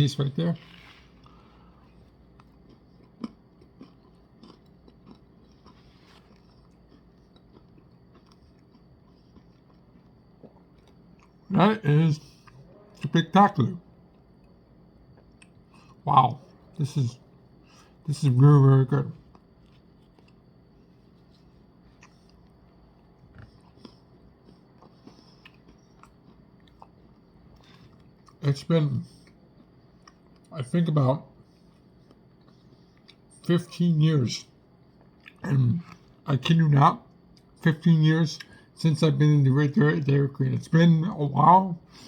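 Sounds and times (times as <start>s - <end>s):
person chewing: 0.6s - 11.5s, 14.1s - 16.9s, 19.1s - 28.4s, 29.0s - 30.5s, 31.5s - 33.5s, 34.8s - 36.2s.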